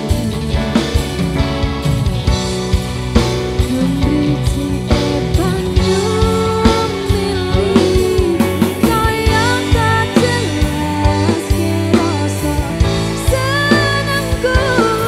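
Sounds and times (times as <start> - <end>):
drum beats: 0.0 - 15.0
steady bass: 0.0 - 15.0
person singing: 3.6 - 15.0.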